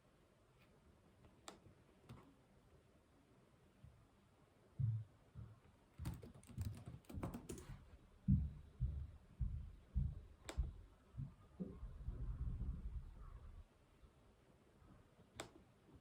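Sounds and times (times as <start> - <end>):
typing on a keyboard: 6.0 - 7.8.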